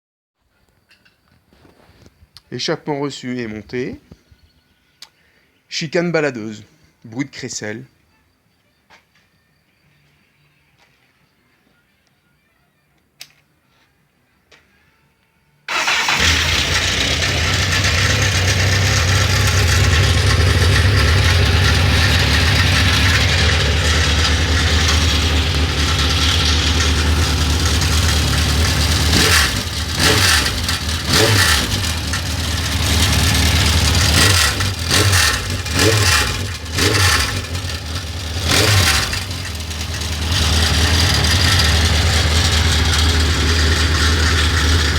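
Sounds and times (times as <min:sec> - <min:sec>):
motorcycle engine starting and idling: 0:15.7 - 0:44.9
motorcycle throttle blips: 0:15.8 - 0:44.9.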